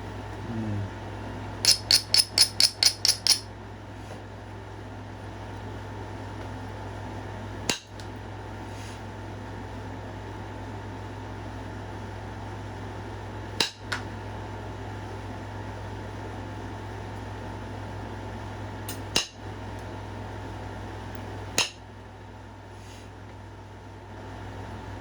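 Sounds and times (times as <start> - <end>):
stone flakes clicking: 1.7 - 3.4.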